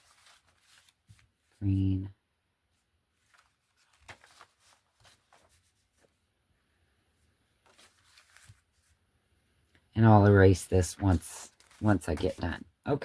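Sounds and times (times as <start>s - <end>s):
paper handling: 0.0s - 1.6s, 3.1s - 6.2s, 7.6s - 9.0s, 10.8s - 12.6s.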